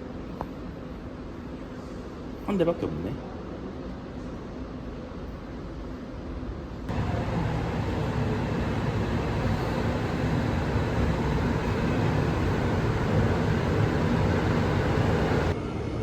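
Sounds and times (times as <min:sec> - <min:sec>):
subway train rumbling: 0:03.2 - 0:16.0.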